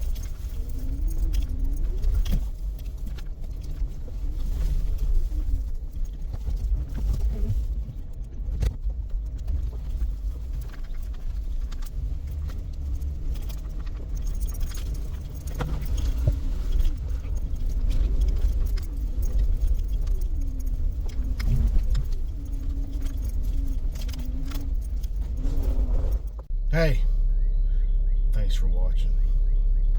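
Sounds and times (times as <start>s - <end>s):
rattles: 0.0s - 26.6s
road and engine rumble: 0.0s - 29.9s
keys jangling: 11.8s - 26.2s.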